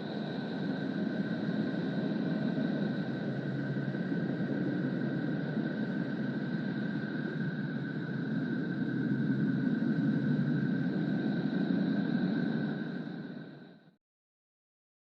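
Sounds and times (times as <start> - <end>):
dense rumbling hiss drone: 0.0 - 14.0.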